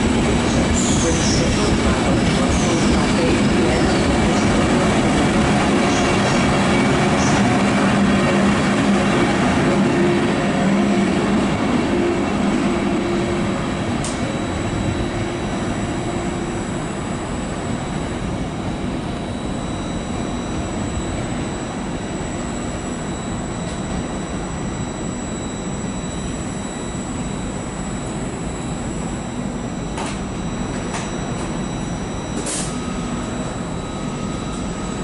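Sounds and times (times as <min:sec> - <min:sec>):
train pulling away: 0:00.0 - 0:16.5.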